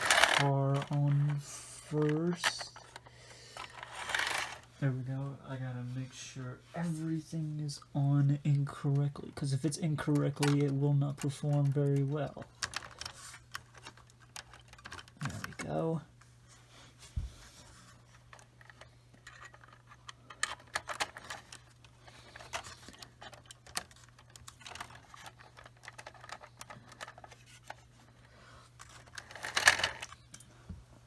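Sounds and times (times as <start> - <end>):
plastic clatter: 0.0 - 1.4, 3.6 - 4.7, 10.0 - 15.8, 18.3 - 28.2, 28.8 - 30.4.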